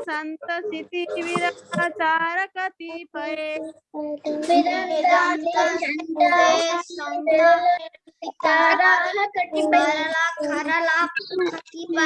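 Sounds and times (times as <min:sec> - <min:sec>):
child chanting verse: 0:04.0 - 0:12.0.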